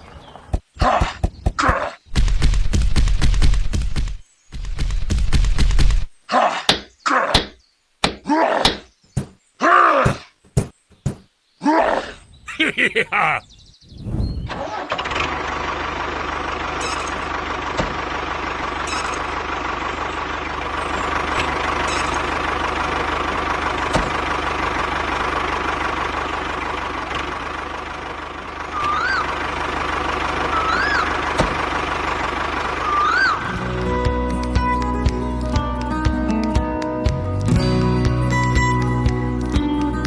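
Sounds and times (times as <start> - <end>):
tractor engine running: 2.1 - 6.1, 14.5 - 40.0.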